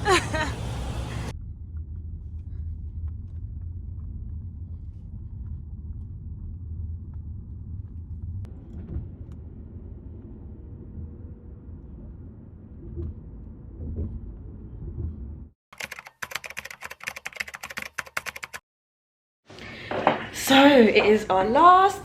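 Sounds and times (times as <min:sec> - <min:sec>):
car engine and road noise: 0:00.0 - 0:01.3.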